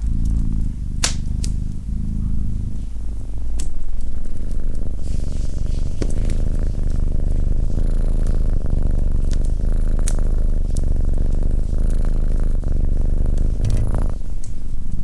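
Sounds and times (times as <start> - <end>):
cat purring: 0.0 - 15.0
fireplace fire crackling: 1.0 - 6.2.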